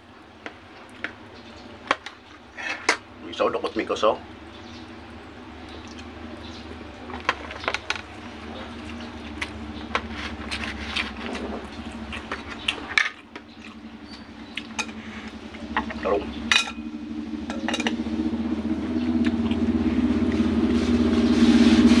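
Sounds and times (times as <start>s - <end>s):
low hum: 0.0s - 22.0s
person chewing and lip-smacking: 10.3s - 15.4s.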